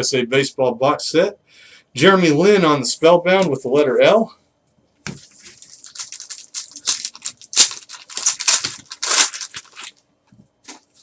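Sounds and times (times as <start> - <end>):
foil wrapper crinkling and tearing: 5.2 - 10.0.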